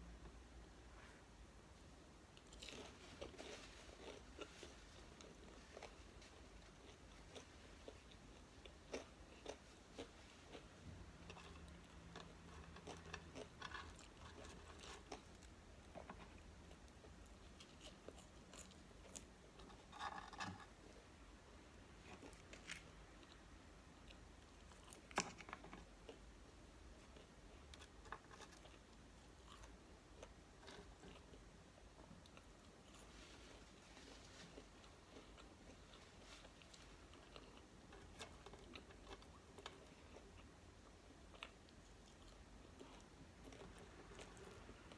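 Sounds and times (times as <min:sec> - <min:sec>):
chewing and biting: 0:02.4 - 0:20.6, 0:26.9 - 0:44.9
food crunch: 0:02.4 - 0:21.0.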